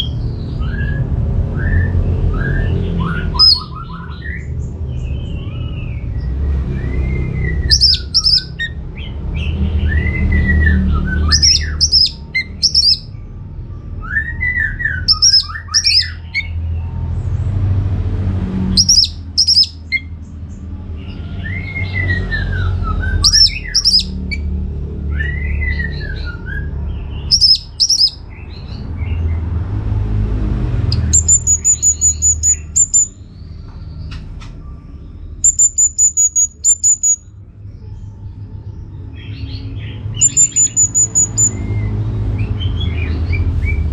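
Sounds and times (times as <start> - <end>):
steady low rumble: 0.0 - 14.1
thrush singing: 6.8 - 13.1, 18.6 - 20.1, 21.5 - 24.5, 30.8 - 33.2, 35.4 - 37.3, 39.4 - 43.9
high pulsing trill: 31.0 - 33.1, 35.5 - 37.2, 40.2 - 41.6.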